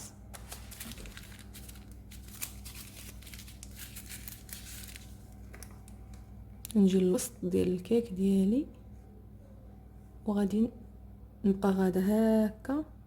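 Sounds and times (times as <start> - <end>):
baking paper crinkling: 0.0 - 6.2.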